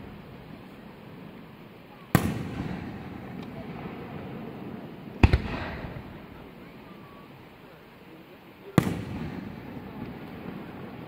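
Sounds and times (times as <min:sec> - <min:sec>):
fireworks crack: 0:00.0 - 0:11.0
rolling echo: 0:02.0 - 0:07.2, 0:08.7 - 0:11.0.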